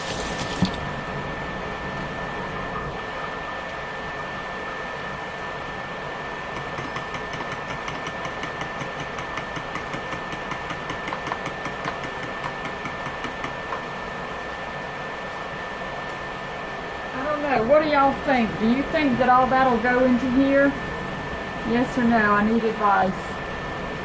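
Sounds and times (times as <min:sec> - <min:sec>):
cooling fan whirring: 0:00.0 - 0:24.0.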